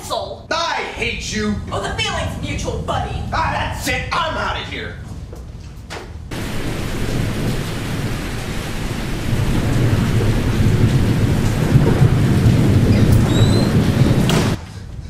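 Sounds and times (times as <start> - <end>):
low rolling thunder: 1.1 - 4.4, 6.2 - 14.6
rain: 6.3 - 14.6.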